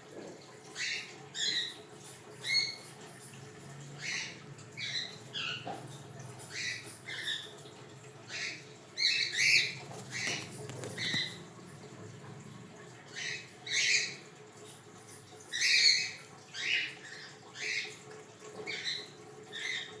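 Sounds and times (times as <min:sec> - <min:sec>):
cockatiels calling: 0:08.3 - 0:11.4.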